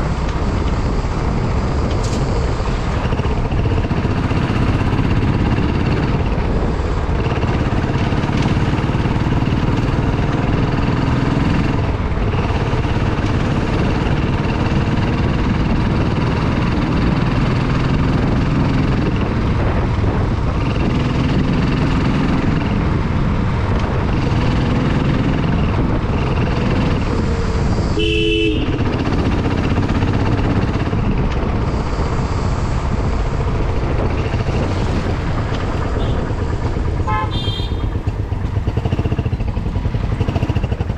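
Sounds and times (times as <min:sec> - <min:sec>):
motorcycle engine running: 0:00.0 - 0:40.9
wind noise: 0:00.0 - 0:40.9
vehicle horn honking: 0:28.0 - 0:28.9, 0:36.0 - 0:36.3, 0:37.0 - 0:38.2.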